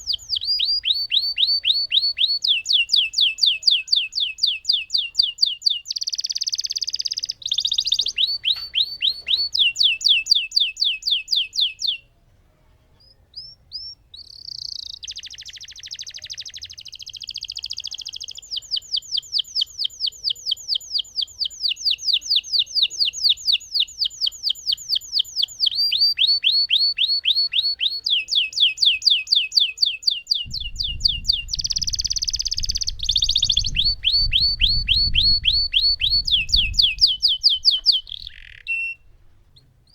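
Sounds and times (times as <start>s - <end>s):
canary singing rolling trills: 0.0s - 12.1s, 12.8s - 39.9s
low rumble: 30.5s - 37.2s.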